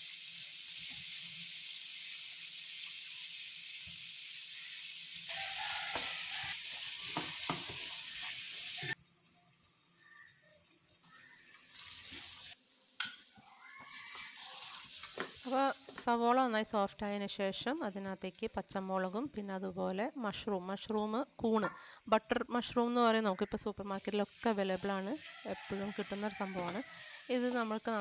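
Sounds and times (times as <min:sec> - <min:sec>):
onions sizzling in oil: 0:00.0 - 0:16.8, 0:22.4 - 0:28.0
spoon scraping pan: 0:11.1 - 0:16.1.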